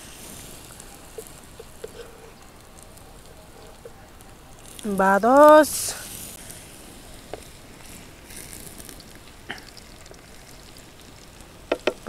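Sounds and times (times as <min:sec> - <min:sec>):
plantains sizzling in oil: 0:00.0 - 0:12.0
oil spattering pops: 0:07.3 - 0:12.0.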